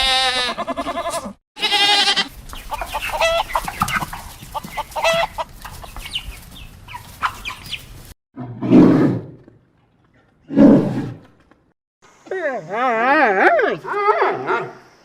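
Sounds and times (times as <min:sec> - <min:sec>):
chickens clucking: 0:02.5 - 0:08.2
large animal roaring: 0:08.4 - 0:09.5, 0:10.4 - 0:11.2.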